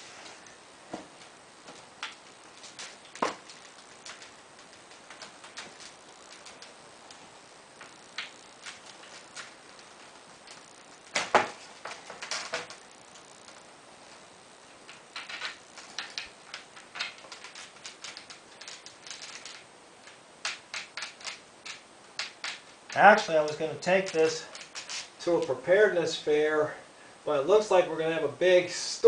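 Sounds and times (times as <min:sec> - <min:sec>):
clicks and taps of parts: 0:14.9 - 0:25.0.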